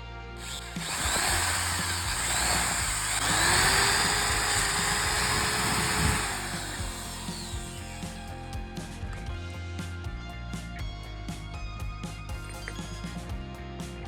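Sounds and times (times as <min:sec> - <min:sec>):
background music: 0:00.0 - 0:14.0
power tool running: 0:00.4 - 0:08.4.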